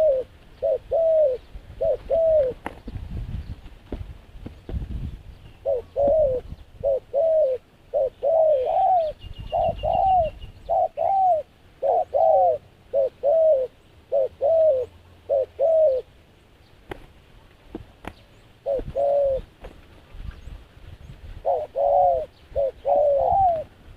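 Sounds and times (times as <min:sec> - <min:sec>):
dove cooing: 0:00.0 - 0:03.0, 0:05.6 - 0:16.2, 0:18.6 - 0:19.7, 0:21.4 - 0:23.9.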